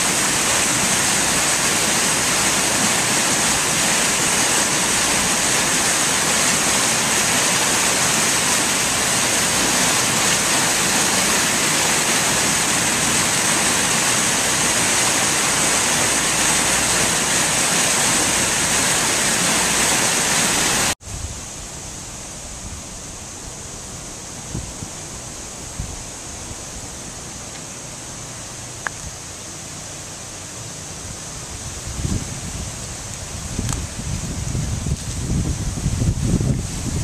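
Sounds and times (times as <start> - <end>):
wind rumbling on microphone: 0.0 - 27.3, 31.0 - 37.0
storm water rushing: 0.0 - 37.0.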